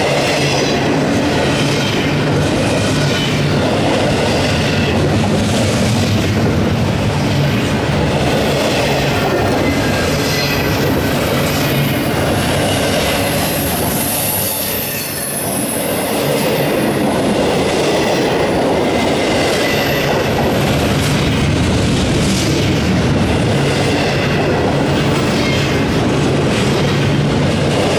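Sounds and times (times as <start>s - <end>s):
train wheels rumbling on rail: 0.0s - 27.9s
high wheel squeal: 8.8s - 16.6s.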